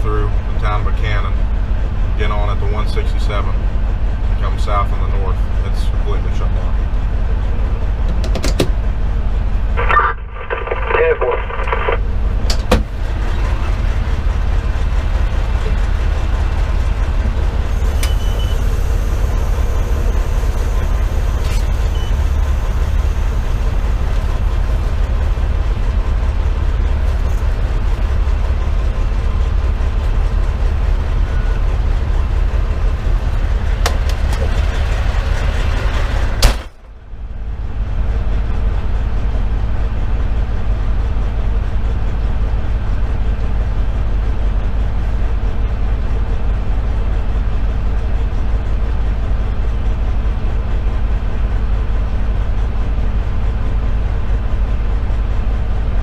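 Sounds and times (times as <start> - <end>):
diesel engine rumble: 0.0 - 56.0
loud bang: 36.4 - 36.8.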